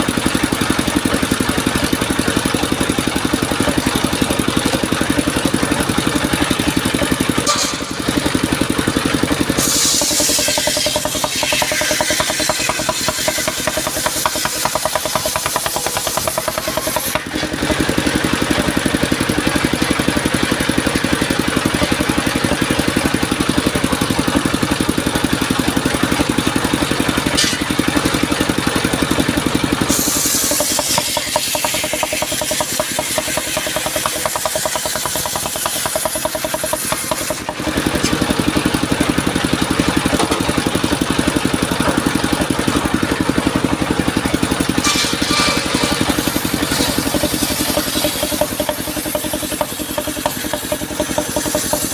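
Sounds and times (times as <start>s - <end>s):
sawmill engine running: 0.0s - 51.9s
hiss: 9.6s - 17.4s, 29.9s - 37.4s.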